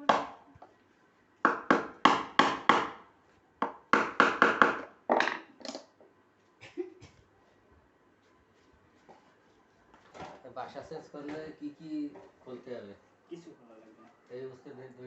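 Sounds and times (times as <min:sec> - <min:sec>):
sharp knocks on hard surface: 0:03.6 - 0:05.4.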